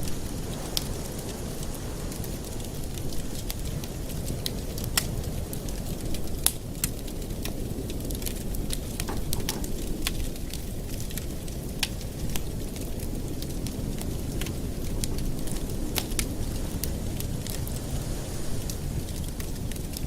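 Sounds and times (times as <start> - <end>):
sharp fire pops: 0.0 - 14.6
wood fire crackling: 0.0 - 20.0.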